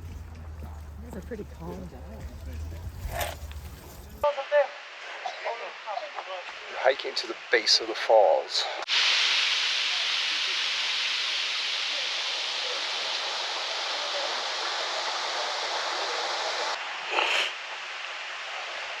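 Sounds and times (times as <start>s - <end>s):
waterfall rushing: 8.8s - 19.0s.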